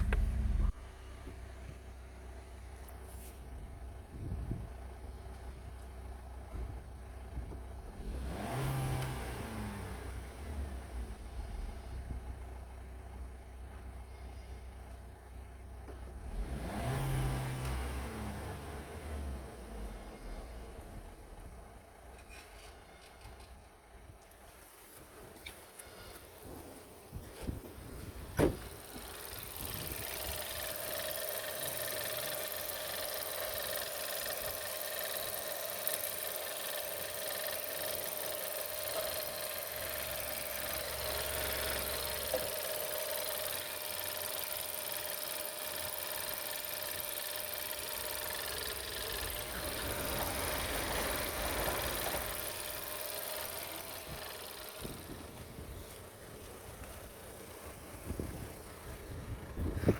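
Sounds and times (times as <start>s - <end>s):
car engine starting and idling: 0.0s - 59.9s
constant tone: 28.4s - 57.7s.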